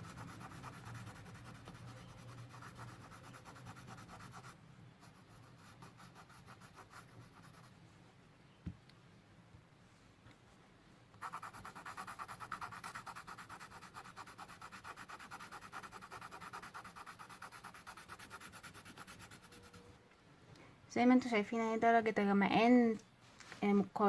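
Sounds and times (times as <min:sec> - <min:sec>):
pencil shading on paper: 0:00.0 - 0:07.7, 0:11.2 - 0:19.9.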